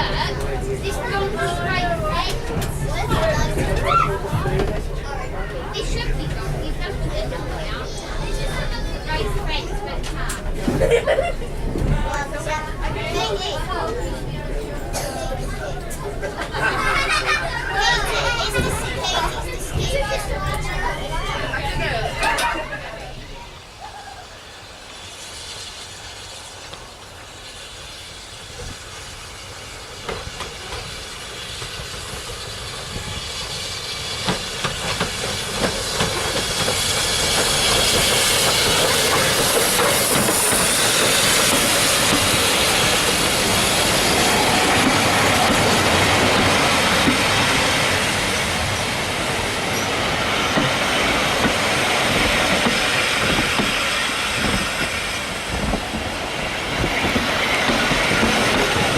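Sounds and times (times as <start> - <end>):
train rumble: 0.0 - 58.9
train wheels clacking over rail joints: 29.9 - 58.9.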